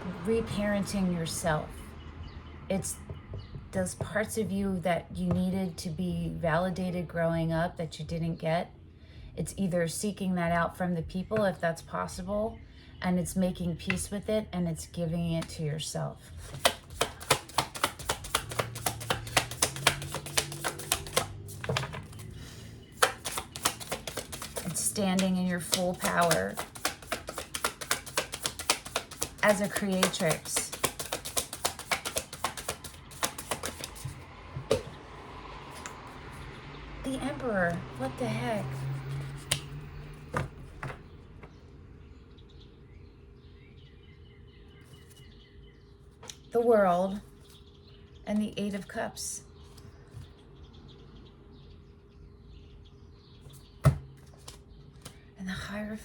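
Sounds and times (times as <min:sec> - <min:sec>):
cards being shuffled: 0:16.4 - 0:35.0, 0:38.8 - 0:41.0, 0:53.8 - 0:55.2.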